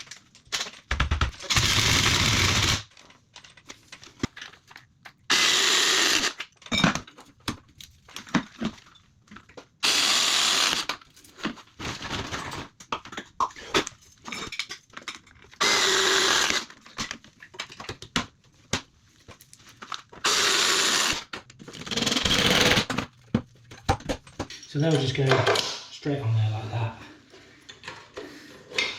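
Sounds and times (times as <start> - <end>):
power drill driving screws: 1.4 - 2.9, 5.3 - 6.4, 9.8 - 11.0, 15.6 - 16.8, 20.2 - 23.0.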